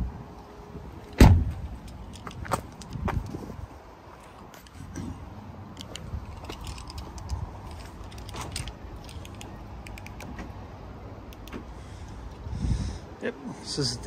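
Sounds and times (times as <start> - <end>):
footsteps on gritty tarmac: 1.5 - 4.9.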